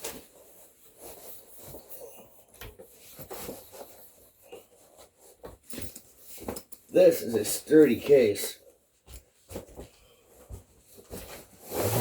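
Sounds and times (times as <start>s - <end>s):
guitar case rubbing and scraping: 11.0s - 12.0s.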